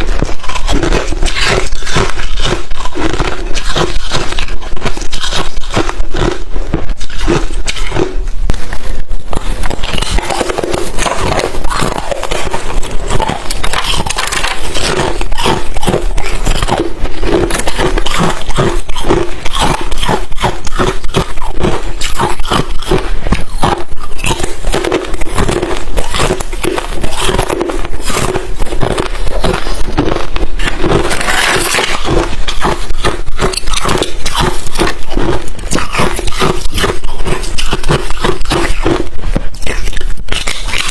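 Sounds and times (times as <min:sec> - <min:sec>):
ice chips being chewed: 0:00.0 - 0:40.9.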